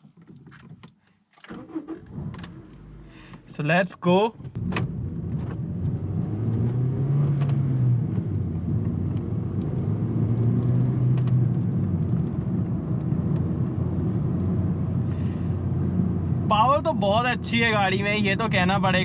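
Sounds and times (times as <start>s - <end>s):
road rumble: 1.5s - 19.0s
car engine accelerating: 4.5s - 17.6s.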